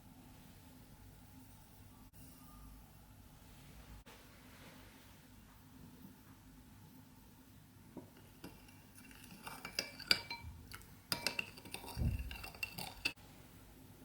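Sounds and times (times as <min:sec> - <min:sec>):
utensil clinking and scraping bowl: 0:08.0 - 0:13.2.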